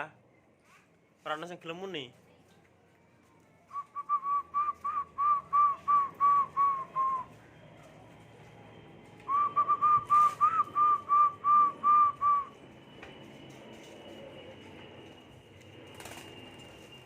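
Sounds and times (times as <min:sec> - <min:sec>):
person whistling short notes: 0:03.7 - 0:07.3, 0:09.3 - 0:12.6.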